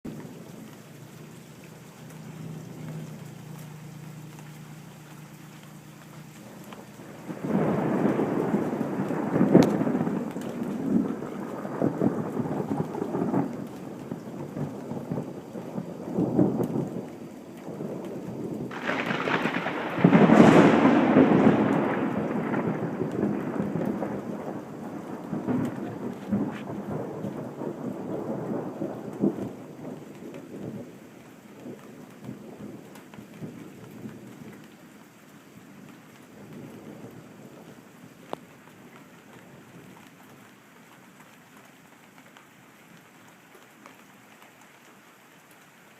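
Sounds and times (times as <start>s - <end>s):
thunder rolling rumble: 2.2s - 31.0s
thunder crash: 7.3s - 13.6s, 18.7s - 29.4s.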